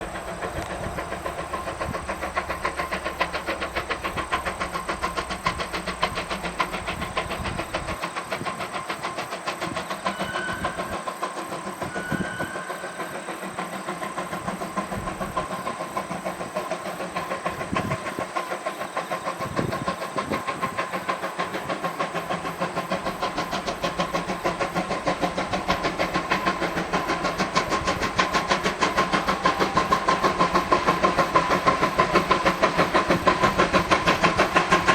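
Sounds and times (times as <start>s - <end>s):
steam locomotive exhaust beats: 0.0s - 34.9s.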